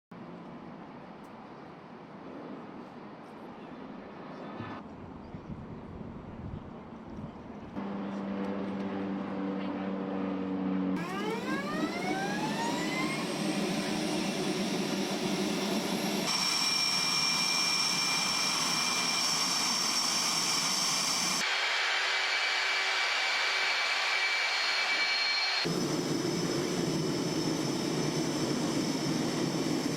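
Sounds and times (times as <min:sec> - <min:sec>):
jet turbine engine whine: 0:07.8 - 0:29.9.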